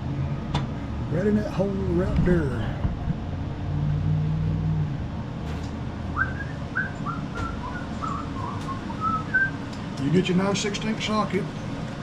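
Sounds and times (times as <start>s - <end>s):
person whistling a tune: 6.2s - 9.6s.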